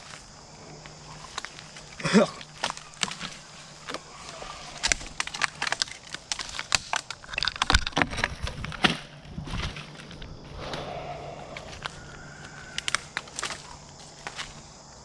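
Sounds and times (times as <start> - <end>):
twigs snapping underfoot: 0.0 - 14.7
footsteps through dry brush: 8.3 - 14.9.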